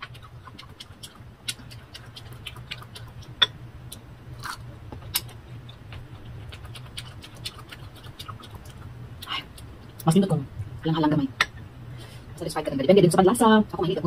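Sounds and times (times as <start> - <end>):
crunchy mango being chewed: 0.0 - 10.1
steady low hum: 0.0 - 14.0
mouth smacks: 5.0 - 10.0.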